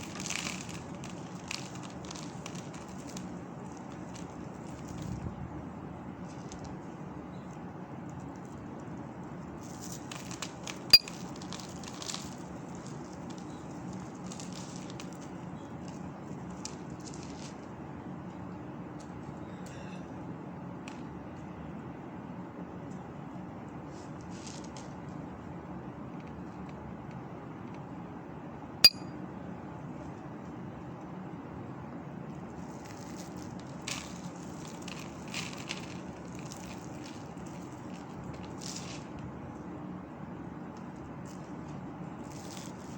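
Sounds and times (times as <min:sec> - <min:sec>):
object clinking on glass dish: 0:28.8 - 0:29.1.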